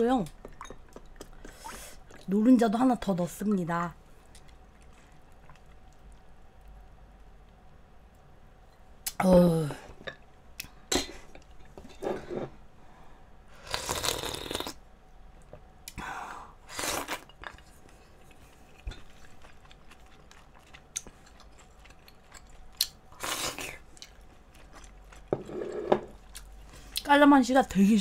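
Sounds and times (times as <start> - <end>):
person chewing and crunching: 16.8 - 27.0.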